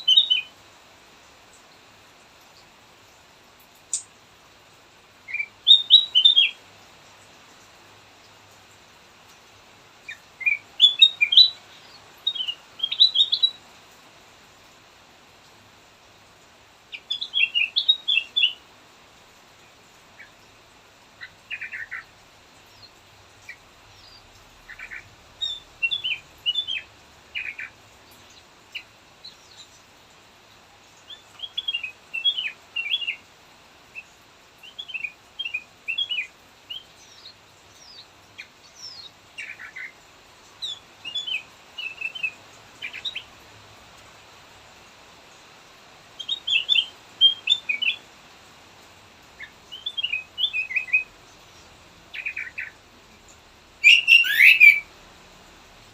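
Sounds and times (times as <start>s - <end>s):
bulbul singing chirpy notes: 53.8s - 54.9s.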